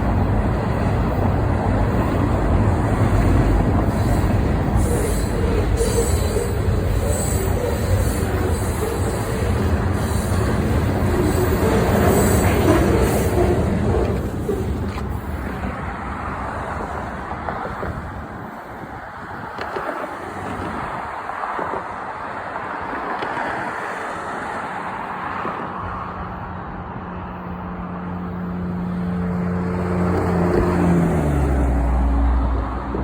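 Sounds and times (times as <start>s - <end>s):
train wheels rumbling: 0.0s - 18.6s
train engine hum: 0.0s - 33.0s.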